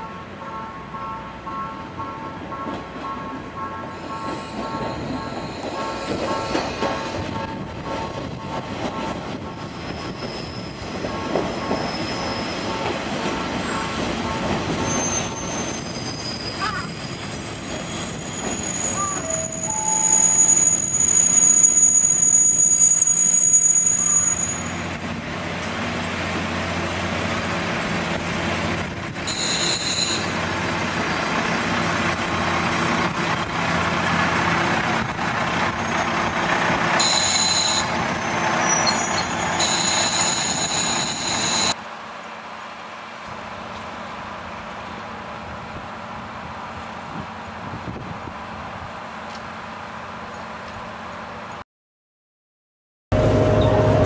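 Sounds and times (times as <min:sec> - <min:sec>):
train running on rails: 0:00.0 - 0:51.6, 0:53.1 - 0:54.0
high wheel squeals: 0:03.9 - 0:07.2, 0:09.5 - 0:12.9, 0:13.6 - 0:24.9, 0:29.3 - 0:30.4, 0:35.7 - 0:36.2, 0:36.9 - 0:41.8.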